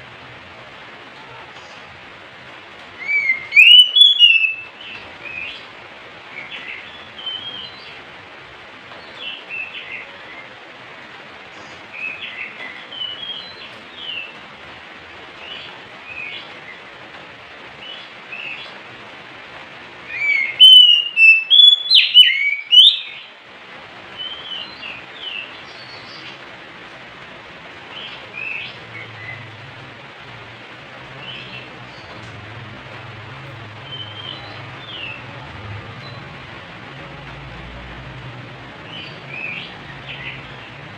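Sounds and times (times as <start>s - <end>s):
bird singing whistled phrases: 3.0s - 4.7s, 20.1s - 23.2s.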